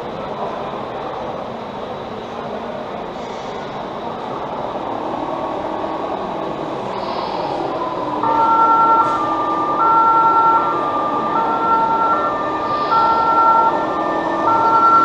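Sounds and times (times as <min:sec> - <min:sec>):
two-tone ambulance siren: 0:07.8 - 0:15.0.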